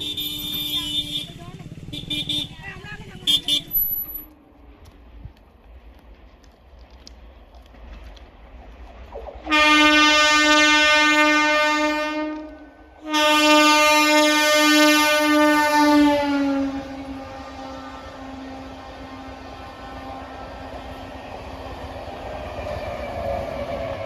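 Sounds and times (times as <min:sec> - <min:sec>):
electric train horn blasts: 0:00.0 - 0:04.3, 0:09.4 - 0:21.6.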